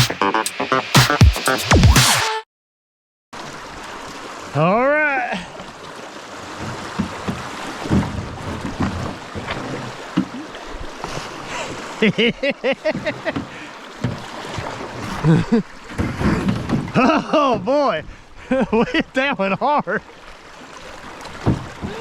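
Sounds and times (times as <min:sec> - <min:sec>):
river water rushing: 0:03.4 - 0:16.0, 0:20.0 - 0:22.0
dull knocks: 0:21.4 - 0:22.0.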